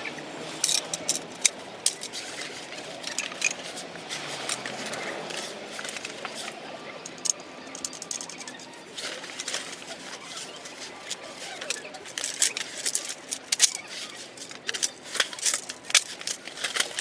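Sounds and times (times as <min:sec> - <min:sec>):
light clattering of parts: 0:00.4 - 0:17.0
sharp plastic clicks: 0:11.1 - 0:17.0.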